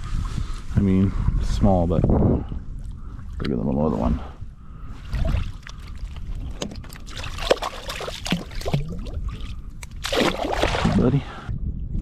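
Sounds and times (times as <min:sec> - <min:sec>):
water splashing and dripping: 0:05.2 - 0:11.0.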